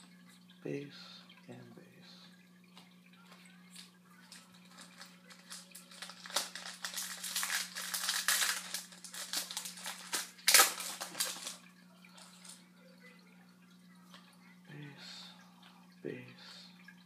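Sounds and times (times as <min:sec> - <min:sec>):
foil wrapper tearing and crinkling: 0:04.6 - 0:11.6.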